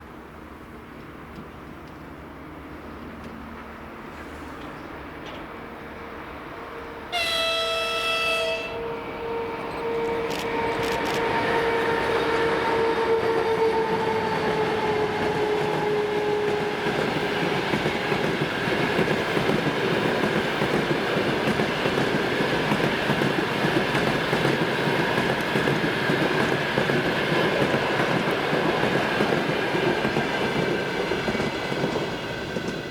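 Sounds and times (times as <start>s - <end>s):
train wheels rumbling on rails: 0.1s - 32.9s
locomotive high tone: 6.6s - 13.1s.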